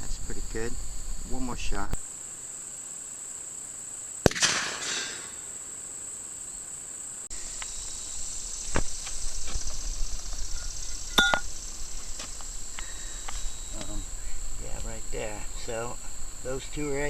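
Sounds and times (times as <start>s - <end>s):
crickets chirping: 0.0s - 17.0s
gunshot: 4.2s - 5.4s.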